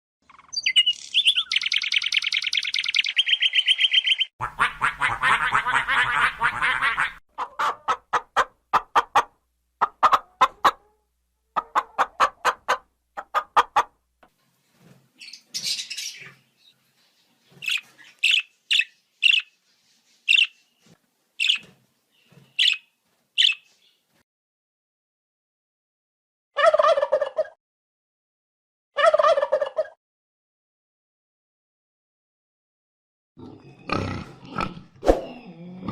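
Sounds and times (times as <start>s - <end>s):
sharp high bird calls: 0.3s - 4.3s, 22.2s - 23.7s.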